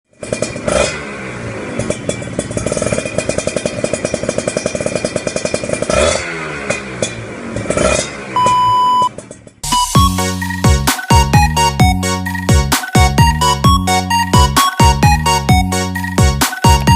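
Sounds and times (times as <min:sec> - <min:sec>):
motorcycle engine revving: 0:00.1 - 0:09.6
short steady beep: 0:08.4 - 0:09.1
electronic music: 0:09.6 - 0:16.9.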